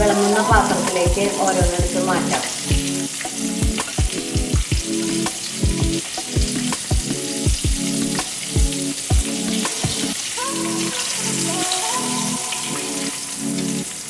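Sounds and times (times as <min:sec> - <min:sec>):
music with thumping beat: 0:00.0 - 0:10.1.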